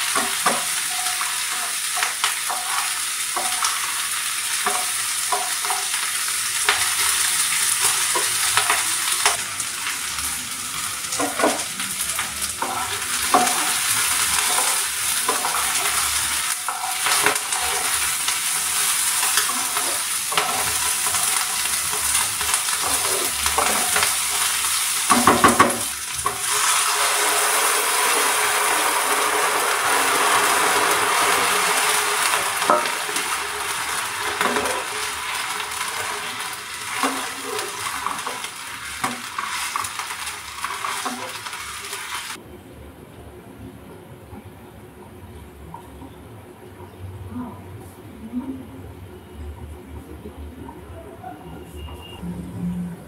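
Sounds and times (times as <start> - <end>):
vegetables sizzling in oil: 0.0 - 42.4
spatula scraping and knocking pan: 0.1 - 4.0, 12.6 - 24.4.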